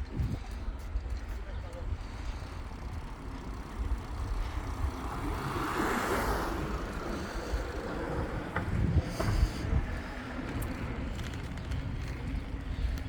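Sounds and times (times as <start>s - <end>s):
wind rumbling on microphone: 0.0s - 13.0s
vehicle passing by: 4.4s - 9.6s.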